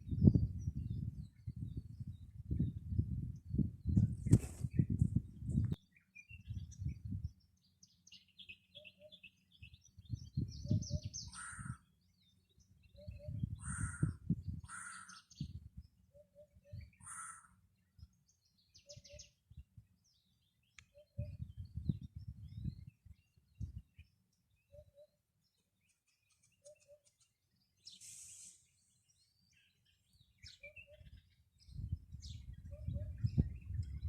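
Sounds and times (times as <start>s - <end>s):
birds chirping and trilling: 0.0s - 34.0s
harsh bird calls: 10.8s - 12.1s, 12.9s - 15.5s, 16.1s - 17.6s.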